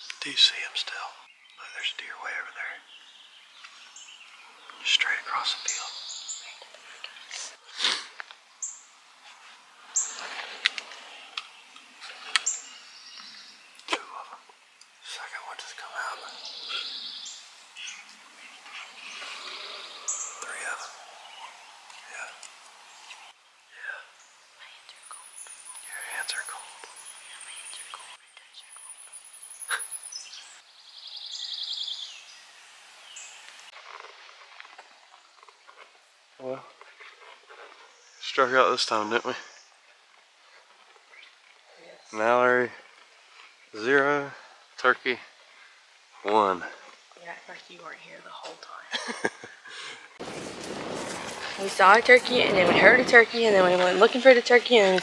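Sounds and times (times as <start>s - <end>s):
short bird calls: 0.0s - 8.0s, 10.0s - 24.2s, 50.2s - 55.0s
songbirds chirping: 0.0s - 55.0s.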